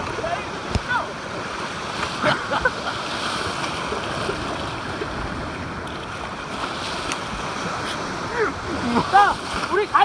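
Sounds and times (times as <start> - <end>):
ocean surf washing: 0.0 - 10.0.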